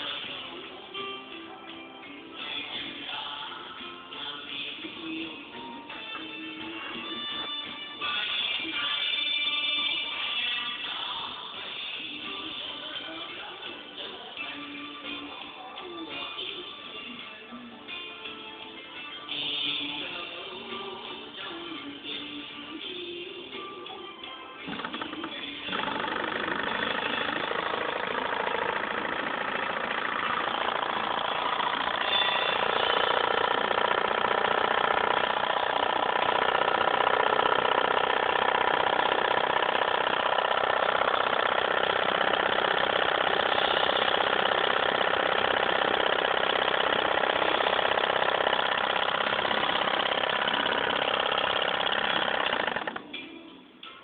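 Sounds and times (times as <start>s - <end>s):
stirling engine mechanical hum: 24.7s - 53.1s.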